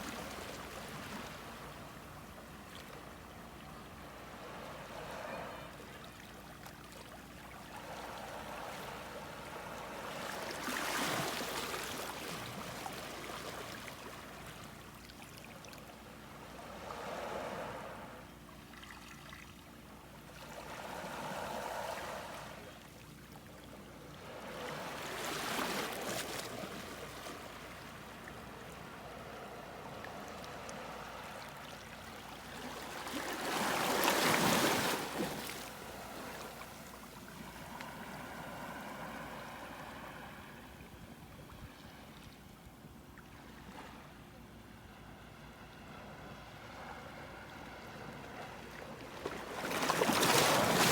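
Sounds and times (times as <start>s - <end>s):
steady wash of water: 7.8s - 14.6s, 29.6s - 45.4s, 46.5s - 50.9s
sea waves surging on shore: 32.5s - 41.1s, 49.4s - 50.9s.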